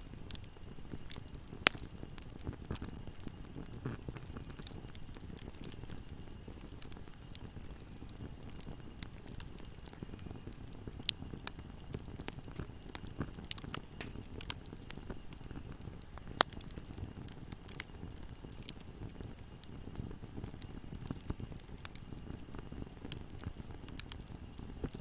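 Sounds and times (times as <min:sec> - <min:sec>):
low rumble of flames: 0:00.0 - 0:25.0
wood fire crackling: 0:00.0 - 0:25.0
loud fire pops: 0:00.2 - 0:25.0.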